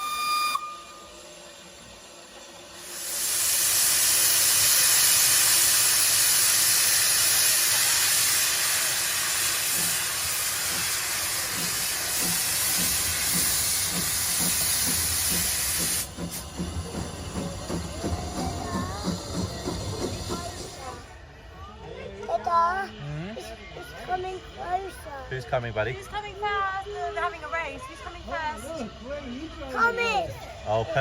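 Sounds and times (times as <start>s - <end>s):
steam locomotive hissing steam: 0.0s - 21.4s, 22.4s - 31.0s.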